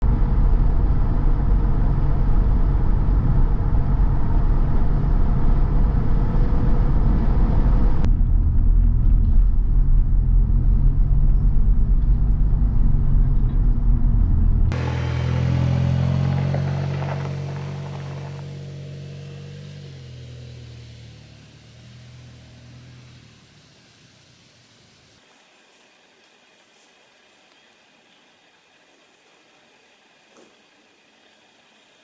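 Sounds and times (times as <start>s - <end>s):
car rumbling on the move: 0.0s - 25.2s.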